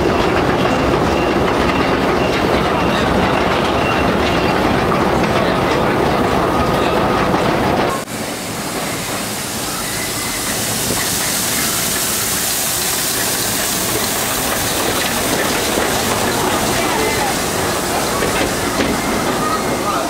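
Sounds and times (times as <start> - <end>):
small train running with hiss: 0.0 - 20.0.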